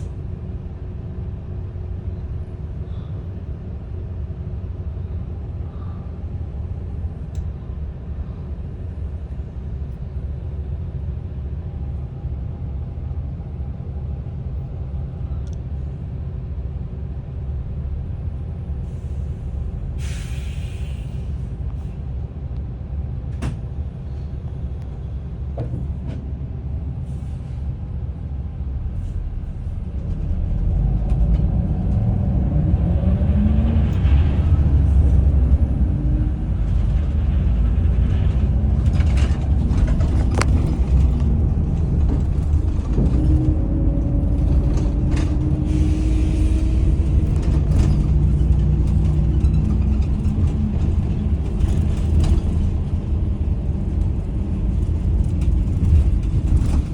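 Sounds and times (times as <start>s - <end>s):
bus diesel engine idling: 0.0s - 31.1s, 33.9s - 56.9s
compressed air hiss: 20.0s - 21.3s.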